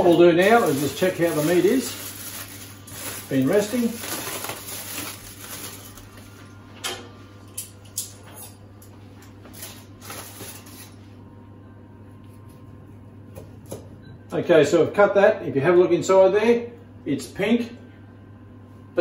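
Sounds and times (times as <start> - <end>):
aluminium foil crinkling: 0.0 - 6.4, 9.4 - 11.0
steady low hum: 0.0 - 19.0.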